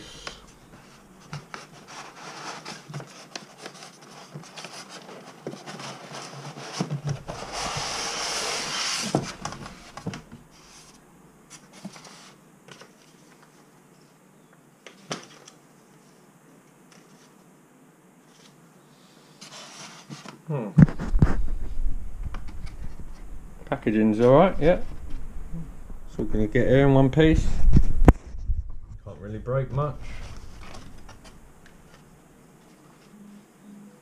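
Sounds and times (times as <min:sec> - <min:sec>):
packaging rustling and crinkling: 0:00.7 - 0:10.4, 0:29.9 - 0:32.1.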